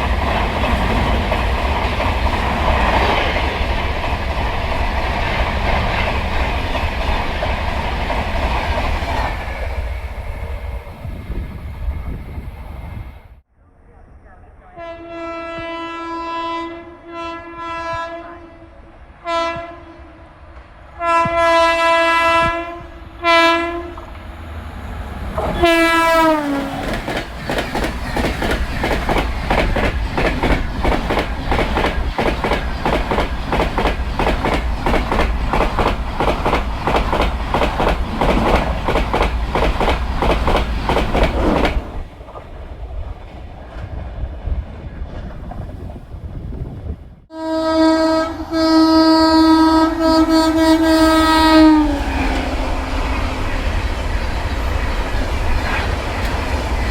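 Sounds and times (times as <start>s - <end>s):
train horn blasts: 14.6s - 20.4s, 21.0s - 24.2s, 25.4s - 26.9s, 47.3s - 53.6s
train wheels rattling over rail joints: 23.9s - 46.2s.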